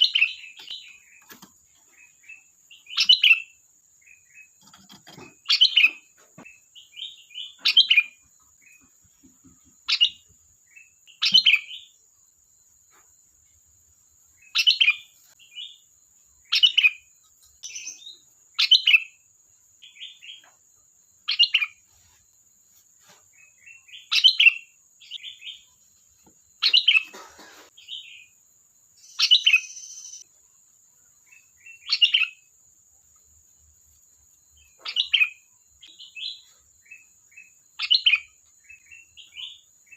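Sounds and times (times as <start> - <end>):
bulbul chattering song: 0.0 - 12.0, 14.4 - 20.5, 26.6 - 30.3, 31.2 - 32.5, 34.5 - 39.9.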